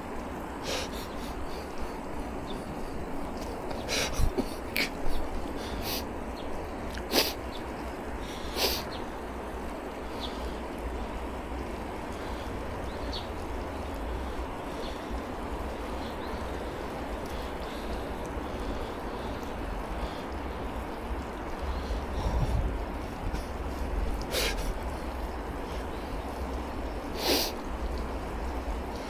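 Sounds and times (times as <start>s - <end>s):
bicycle road noise: 0.0s - 29.0s
rushing wind: 0.0s - 29.0s
low microphone rumble: 20.6s - 24.2s.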